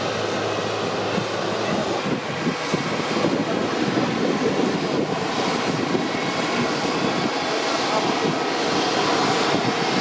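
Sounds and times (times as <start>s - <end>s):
jet engines rushing: 0.0s - 10.0s.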